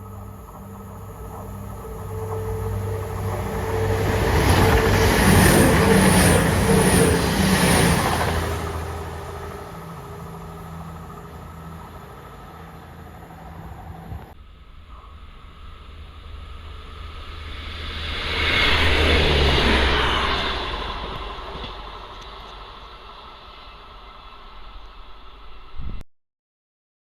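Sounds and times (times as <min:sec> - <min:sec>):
clatter of train wheels: 0:00.0 - 0:11.9
low engine hum: 0:00.0 - 0:25.4
train passing: 0:00.0 - 0:25.8.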